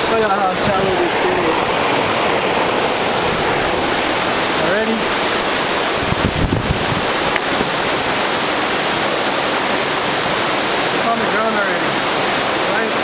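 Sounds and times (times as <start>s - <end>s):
low buffeting on microphone: 0.0s - 8.2s
waterfall rushing: 0.0s - 13.0s.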